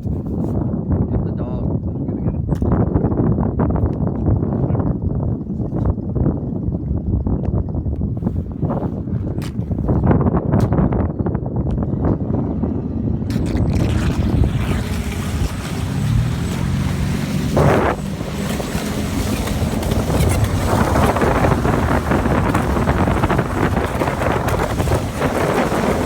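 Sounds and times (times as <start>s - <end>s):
wind buffeting microphone: 0.0s - 26.0s
distant boat motor whine: 11.4s - 26.0s
water splash: 13.3s - 26.0s.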